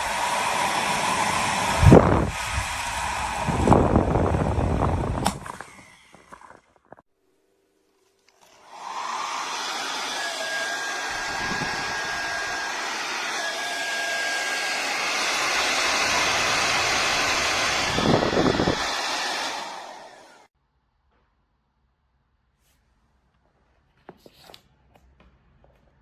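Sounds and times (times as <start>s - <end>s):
hair dryer running: 0.0s - 6.4s, 8.5s - 20.5s
low rumbling surges: 15.2s - 19.2s.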